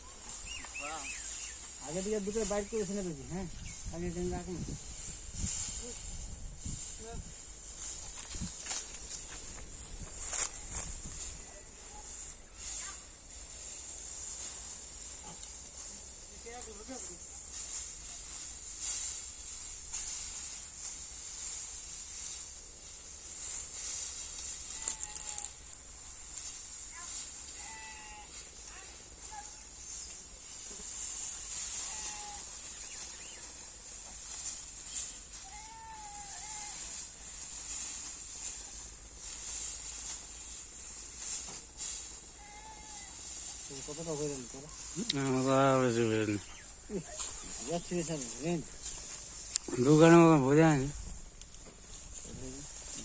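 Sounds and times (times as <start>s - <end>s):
high-pitched insect chorus: 0.0s - 53.0s
drawn-out animal call: 24.7s - 25.6s, 31.4s - 33.5s, 35.4s - 37.0s.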